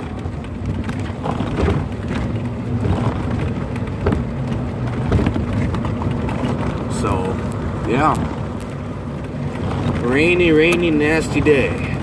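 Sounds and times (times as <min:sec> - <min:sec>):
golf cart engine rumble: 0:00.0 - 0:12.0.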